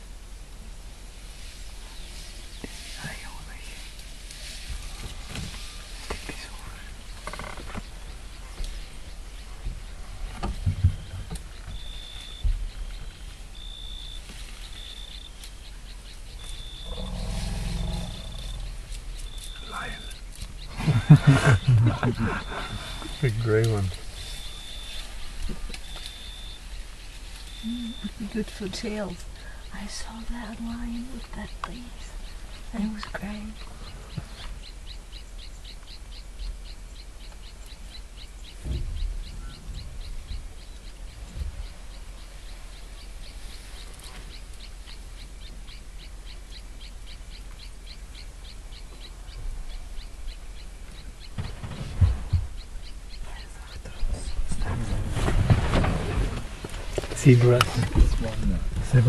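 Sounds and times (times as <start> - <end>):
elephant growling rumble: 16.4 - 20.0, 20.6 - 25.8.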